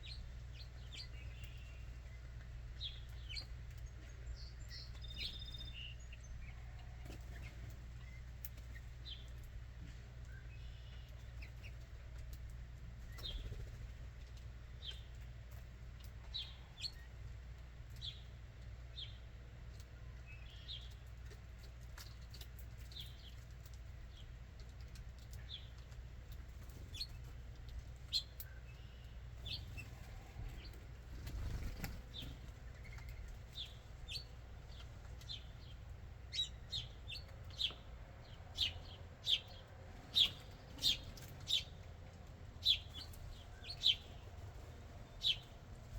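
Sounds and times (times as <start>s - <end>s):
low steady rumble: 0.0s - 45.9s.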